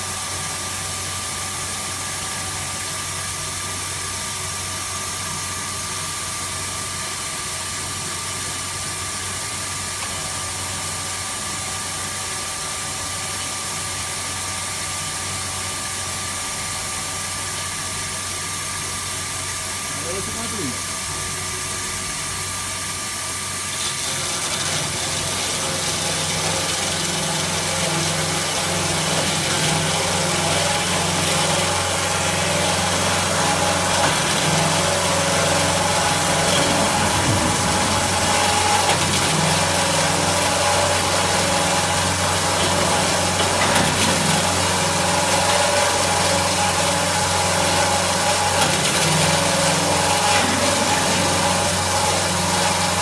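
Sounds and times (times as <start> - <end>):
band saw humming: 19.7 - 22.4, 23.5 - 53.0.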